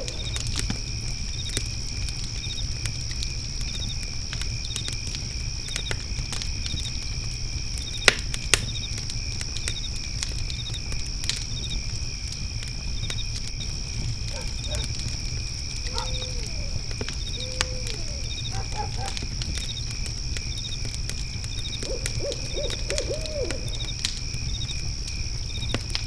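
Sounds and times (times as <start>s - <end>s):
crickets chirring: 0.0s - 26.0s
wood fire crackling and popping: 0.0s - 26.0s.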